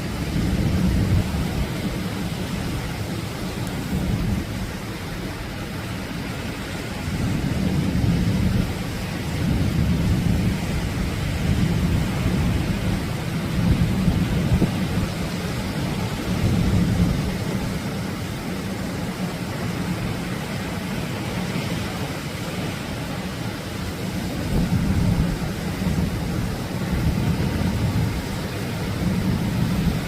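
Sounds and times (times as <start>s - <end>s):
ocean waves breaking on shore: 0.0s - 30.0s.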